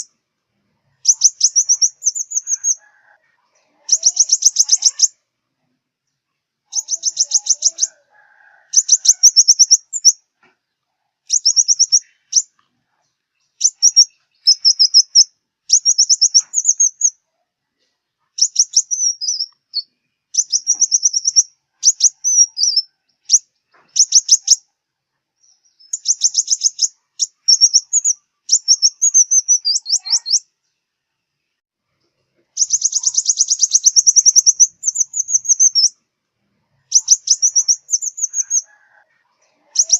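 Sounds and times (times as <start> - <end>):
sunbird trilling song: 1.0 - 2.8, 3.7 - 5.2, 6.7 - 8.0, 8.7 - 10.2, 11.3 - 12.6, 13.3 - 17.2, 18.4 - 24.7, 25.4 - 30.5, 32.6 - 36.0, 36.8 - 38.7, 39.6 - 39.9.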